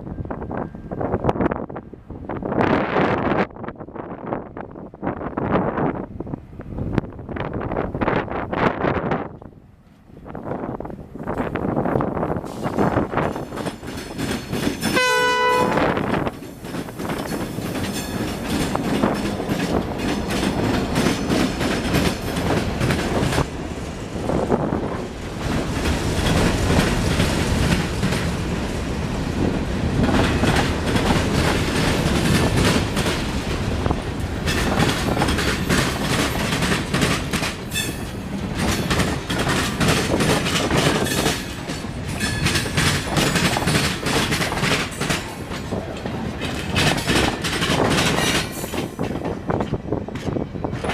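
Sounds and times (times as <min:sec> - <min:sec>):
train rumbling past: 0:00.0 - 0:50.9
wheels clicking over rail joints: 0:11.2 - 0:15.4, 0:16.0 - 0:23.6, 0:29.9 - 0:50.9
train horn blast: 0:14.9 - 0:16.1.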